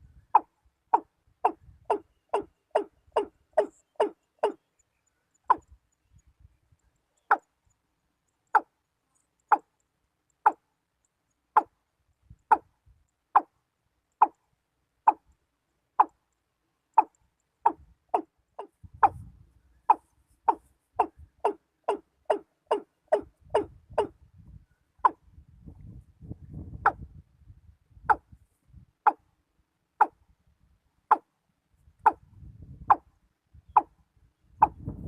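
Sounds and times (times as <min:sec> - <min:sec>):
watercock hollow knocking call: 0:00.3 - 0:04.6, 0:19.9 - 0:24.2.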